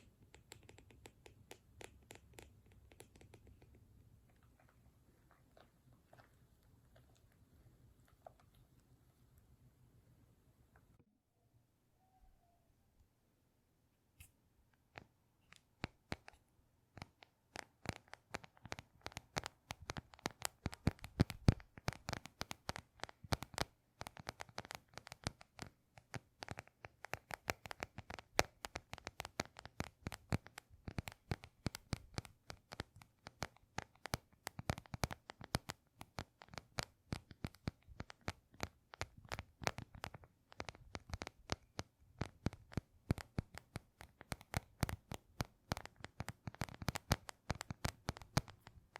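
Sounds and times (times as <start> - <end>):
crisp clicks and scratches: 14.9 - 48.9.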